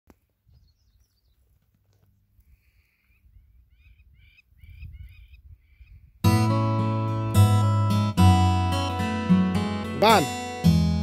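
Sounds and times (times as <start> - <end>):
faint bird calls: 2.4 - 6.2
wind rumble on microphone: 3.2 - 6.3.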